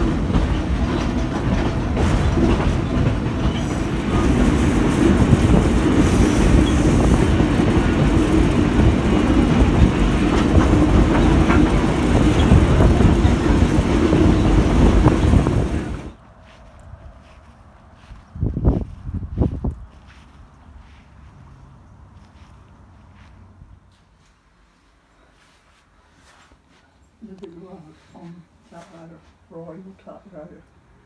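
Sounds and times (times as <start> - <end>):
railroad car rumbling on track: 0.0 - 24.0.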